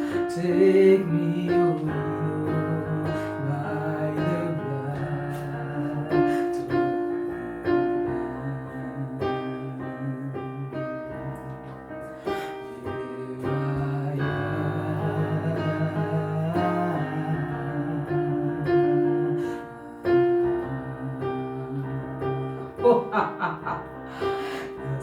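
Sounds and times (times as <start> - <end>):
slow worship music on piano: 0.0 - 25.0.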